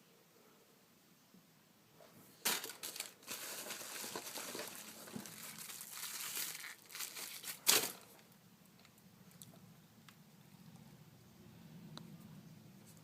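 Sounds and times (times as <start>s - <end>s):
plastic packaging crinkling: 2.4s - 8.2s
sharp plastic crackle: 2.4s - 9.6s.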